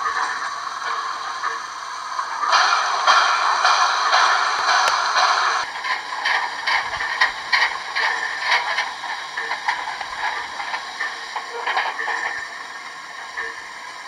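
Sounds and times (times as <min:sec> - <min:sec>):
model train clattering on track: 0:00.0 - 0:14.0
steam hiss: 0:00.0 - 0:14.0.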